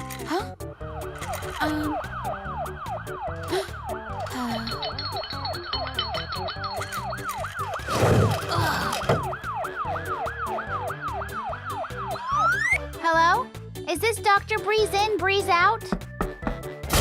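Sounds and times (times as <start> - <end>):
background music: 0.0 - 17.0
cartoon ambulance siren: 0.8 - 12.8.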